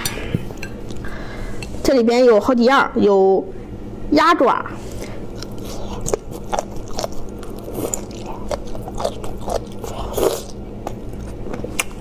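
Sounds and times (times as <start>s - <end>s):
person chewing crunchy food: 4.9s - 12.0s.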